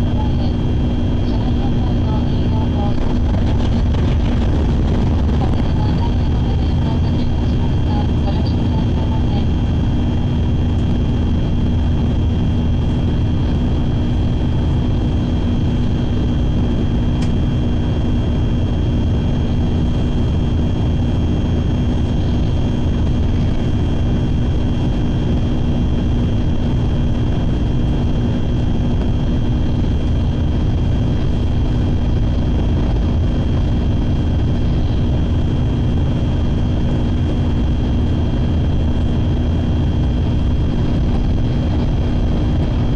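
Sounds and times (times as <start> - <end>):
steady hums: 0.0 - 42.9
train running rumble: 1.2 - 10.2.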